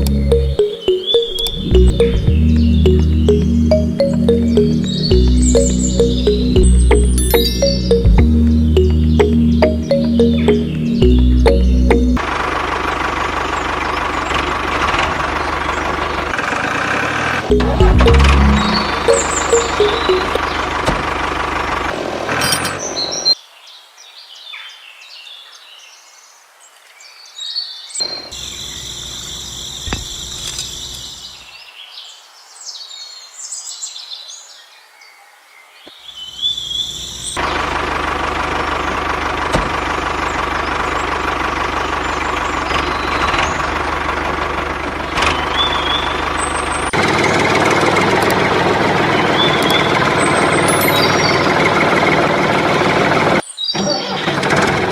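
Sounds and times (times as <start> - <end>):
birds chirping: 0.0 - 12.4, 17.5 - 21.8, 40.0 - 47.5, 49.0 - 52.4
engine running: 0.0 - 23.2, 37.4 - 53.4.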